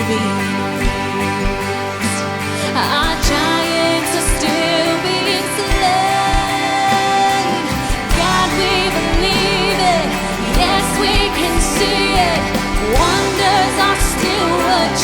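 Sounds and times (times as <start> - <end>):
people singing worship song: 0.0 - 15.0
worship band music: 0.0 - 15.0
drum beat: 7.7 - 15.0.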